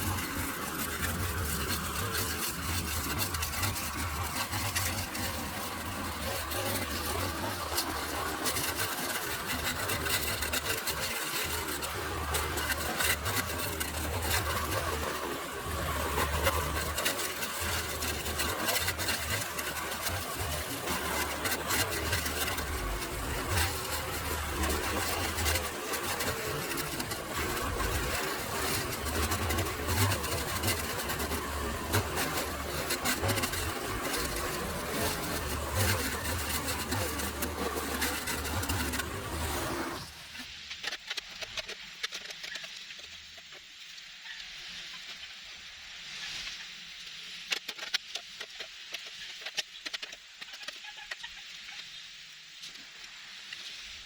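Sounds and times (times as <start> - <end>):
small engine running: 0.0 - 42.6
rough noisy hiss: 0.0 - 54.0
hiss: 51.4 - 54.0.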